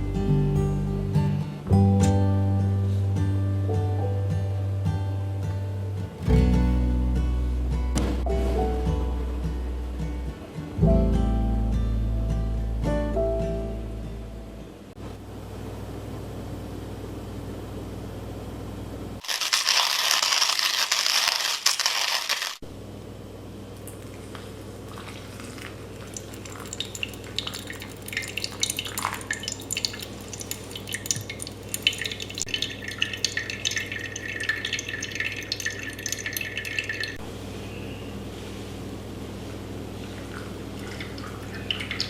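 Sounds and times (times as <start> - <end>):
water dripping and crackling: 23.7 - 37.2, 40.0 - 42.0
water running: 23.8 - 37.2, 40.0 - 42.0.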